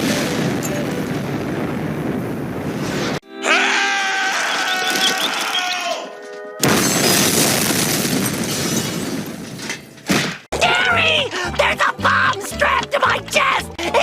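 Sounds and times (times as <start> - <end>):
cartoon explosion blast: 0.0 - 3.2.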